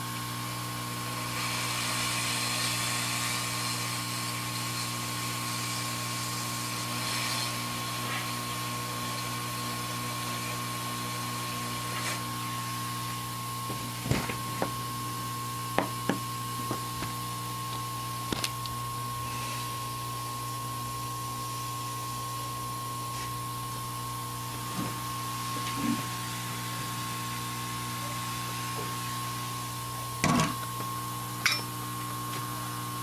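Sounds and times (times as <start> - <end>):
electronics equipment whirring hiss: 0.0 - 33.0
thin steady high tone: 31.4 - 31.7.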